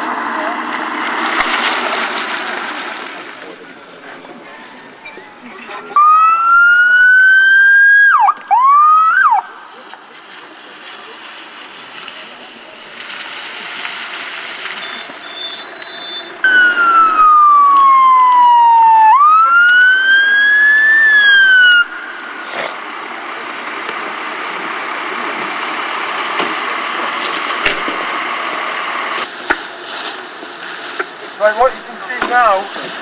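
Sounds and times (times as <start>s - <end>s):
emergency siren wailing: 5.8s - 9.7s, 16.4s - 22.4s
rushing background noise: 9.4s - 33.0s.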